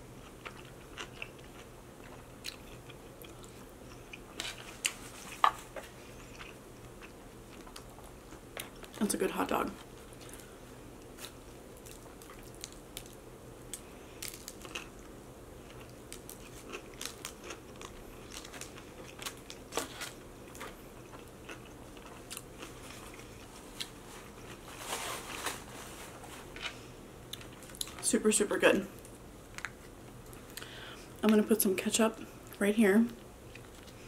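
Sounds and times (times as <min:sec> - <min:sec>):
chewing with wet clicks: 0:00.2 - 0:04.2, 0:20.6 - 0:22.5.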